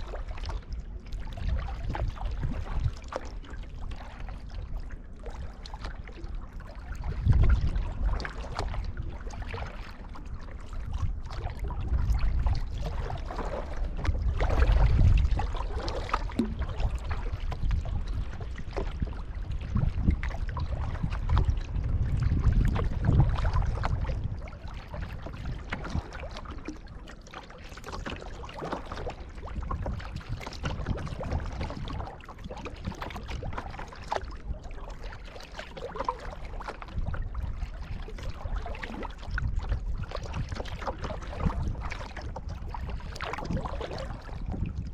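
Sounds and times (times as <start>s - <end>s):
water splashing around kayak: 0.0s - 44.9s
low rumble: 10.3s - 26.1s.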